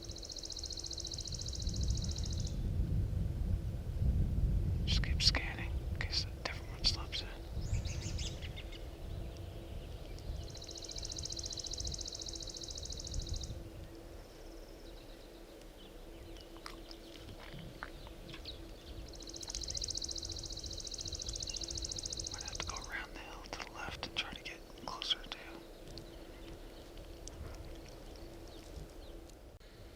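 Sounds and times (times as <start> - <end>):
songbird high-pitched trill: 0.0 - 2.6, 7.4 - 17.2, 17.8 - 23.2.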